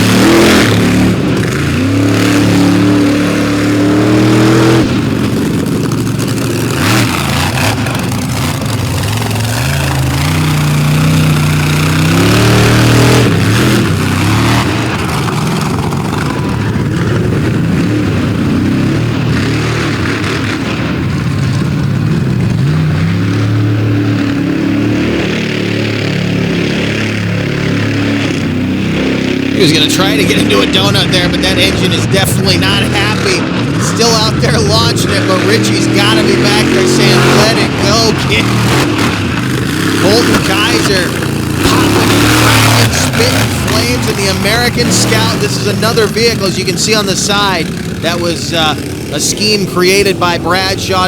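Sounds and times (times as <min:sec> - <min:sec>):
monster truck engine revving: 0:00.0 - 0:51.0
announcer speaking: 0:29.5 - 0:38.9, 0:40.0 - 0:51.0.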